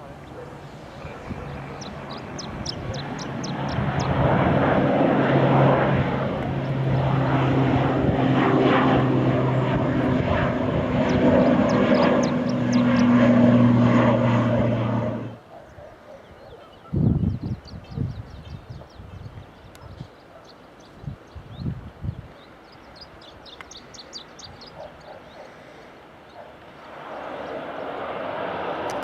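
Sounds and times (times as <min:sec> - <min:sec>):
airliner engines running: 0:00.0 - 0:15.4, 0:20.8 - 0:29.0
small birds chirping: 0:00.1 - 0:04.4, 0:10.7 - 0:13.6, 0:15.5 - 0:28.1.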